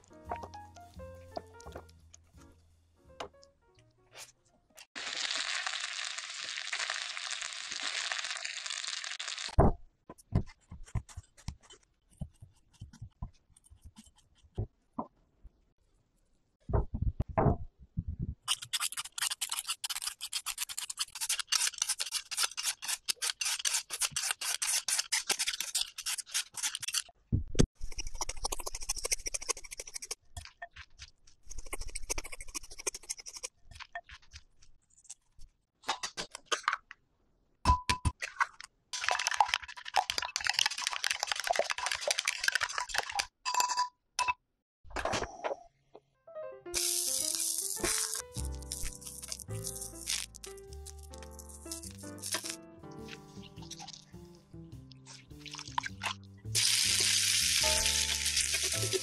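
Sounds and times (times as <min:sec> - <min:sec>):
chopsticks beating egg: 0:18.5 - 0:27.1, 0:39.0 - 0:43.3, 0:46.8 - 0:59.0
peeler rasping potato: 0:18.5 - 0:27.1, 0:30.8 - 0:34.4, 0:46.8 - 0:54.1.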